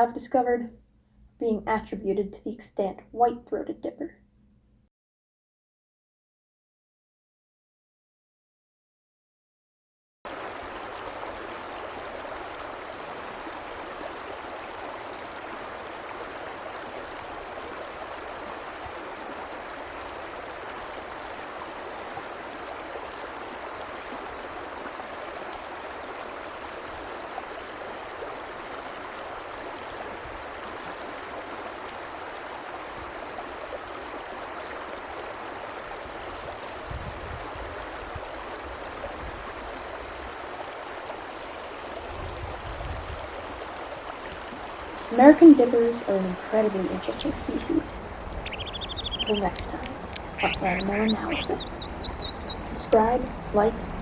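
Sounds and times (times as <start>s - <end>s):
stream rushing: 10.3s - 54.0s.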